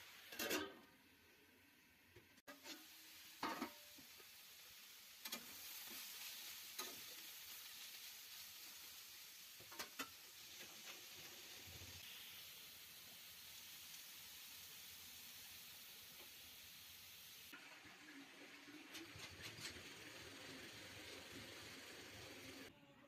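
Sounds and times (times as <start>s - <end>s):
vegetables sizzling in a pan: 0.0s - 22.7s
spatula scraping and tapping pan: 2.5s - 4.1s, 9.6s - 11.0s.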